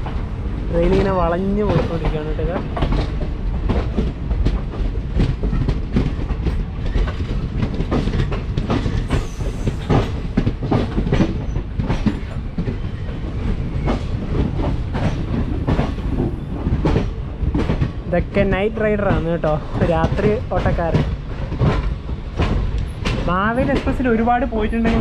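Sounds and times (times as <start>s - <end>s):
train coaches rumbling: 0.0s - 25.0s.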